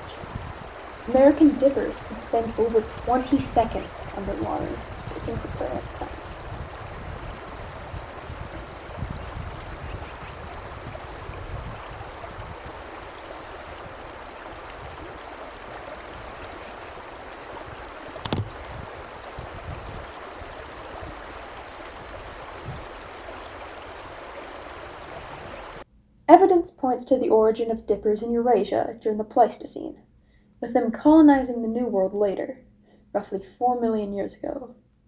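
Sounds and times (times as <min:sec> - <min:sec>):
stream rushing over rocks: 0:00.0 - 0:25.8.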